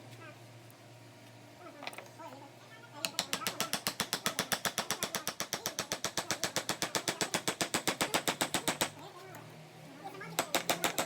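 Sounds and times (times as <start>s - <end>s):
carving tool tapping on wood: 3.0s - 9.0s, 10.4s - 11.0s.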